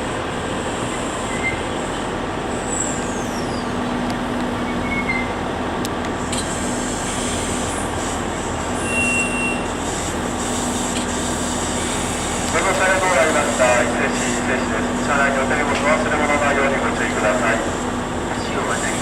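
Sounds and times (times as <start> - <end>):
high train squeals: 0.0 - 5.5, 6.2 - 15.3
train rolling rumble: 0.0 - 19.0.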